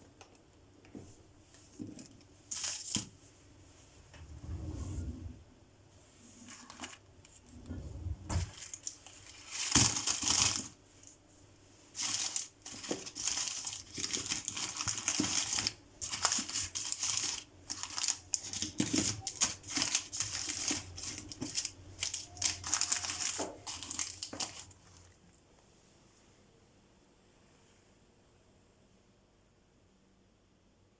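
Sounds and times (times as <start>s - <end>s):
packaging crinkling: 2.0s - 3.1s, 6.4s - 7.4s, 8.4s - 11.2s, 11.9s - 25.2s.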